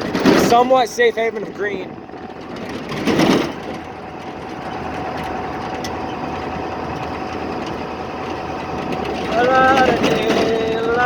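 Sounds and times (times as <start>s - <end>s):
road and wind noise: 0.0s - 11.0s
truck engine running: 0.0s - 11.0s.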